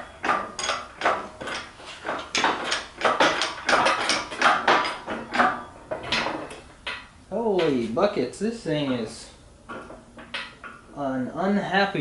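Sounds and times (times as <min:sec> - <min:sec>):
engine crane clanking and rattling: 0:00.0 - 0:07.8.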